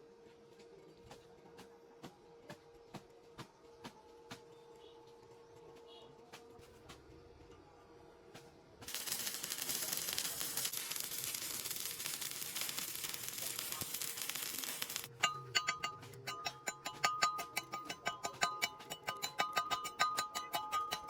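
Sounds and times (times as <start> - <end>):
welding arc crackling: 8.9 - 15.1.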